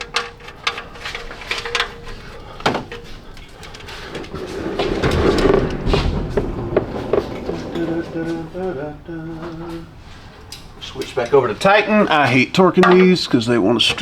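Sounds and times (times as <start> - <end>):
tools clicking and knocking: 0.0 - 8.2, 12.8 - 13.2
rubbing and clatter: 0.0 - 10.0.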